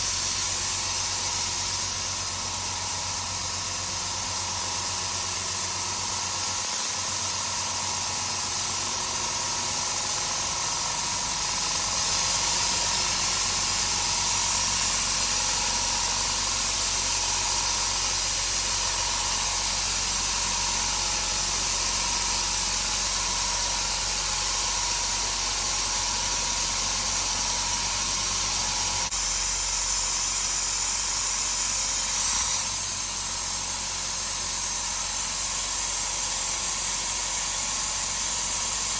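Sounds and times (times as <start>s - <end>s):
air compressor running: 0.0s - 38.9s.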